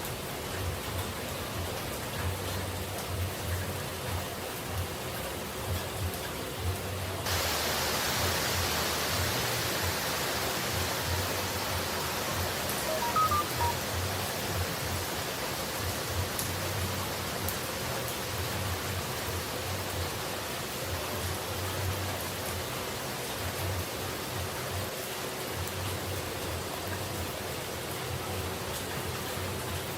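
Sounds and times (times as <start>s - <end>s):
falling water rushing: 0.0s - 29.9s
faint high notes: 12.8s - 13.9s.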